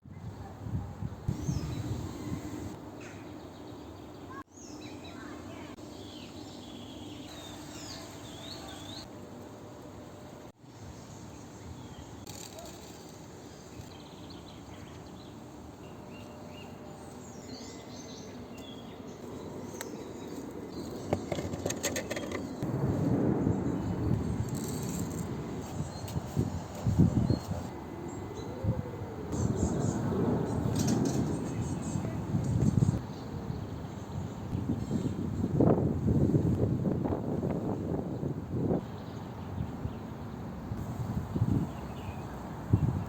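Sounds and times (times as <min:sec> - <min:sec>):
background hiss: 0:01.3 - 0:02.8
small birds chirping: 0:01.3 - 0:09.1.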